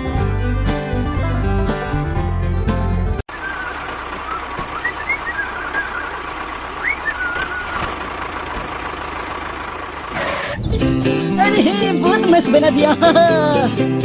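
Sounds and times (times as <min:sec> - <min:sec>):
vehicle engine running: 0:00.0 - 0:12.3
small warbling chirps: 0:03.3 - 0:07.8.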